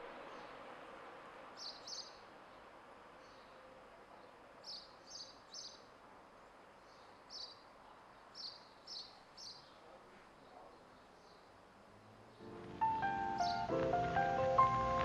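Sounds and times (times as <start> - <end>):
faint outdoor background hiss: 0.0 - 15.0
small bird chirping: 1.6 - 2.2, 6.8 - 9.9.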